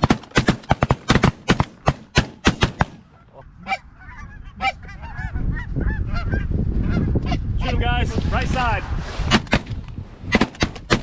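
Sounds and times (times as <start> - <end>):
shotgun shots: 0.0 - 3.1
geese honking: 2.8 - 7.4.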